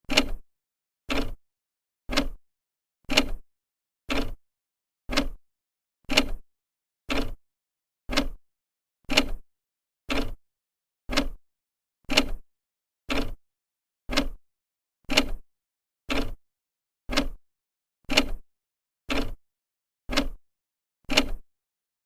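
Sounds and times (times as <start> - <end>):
clock ticking: 1.1 - 1.4, 2.1 - 2.4, 4.1 - 4.4, 5.1 - 5.4, 7.1 - 7.4, 8.1 - 8.4, 10.1 - 10.4, 11.1 - 11.4, 13.1 - 13.4, 14.1 - 14.4, 16.1 - 16.4, 17.1 - 17.4, 19.1 - 19.4, 20.1 - 20.4.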